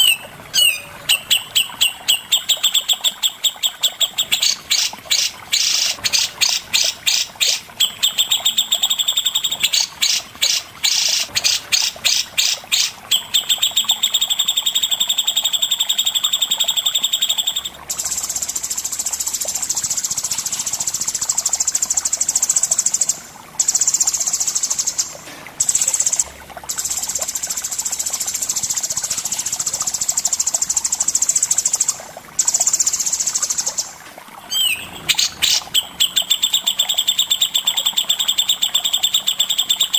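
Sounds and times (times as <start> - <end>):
high buzzing bird trill: 0.0 - 18.8, 34.5 - 39.9
songbird sweeping chirps: 34.5 - 35.6.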